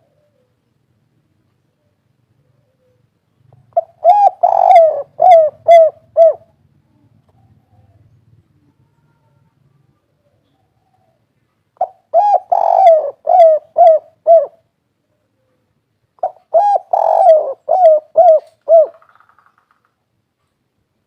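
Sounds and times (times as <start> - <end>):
dove cooing: 0.0 - 0.6, 1.8 - 9.4, 11.8 - 14.7, 16.2 - 19.3.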